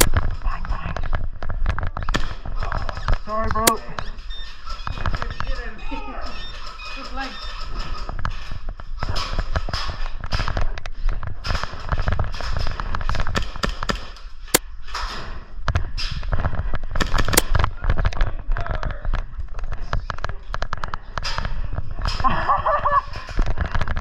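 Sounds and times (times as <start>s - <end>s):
airsoft guns firing: 13.1s - 14.6s, 17.0s - 17.7s.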